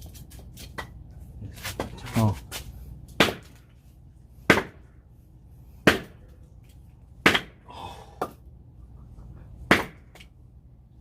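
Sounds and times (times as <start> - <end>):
axe striking log: 3.1 - 3.7, 4.4 - 4.9, 5.8 - 6.2, 7.2 - 7.6, 8.2 - 8.4, 9.7 - 10.3.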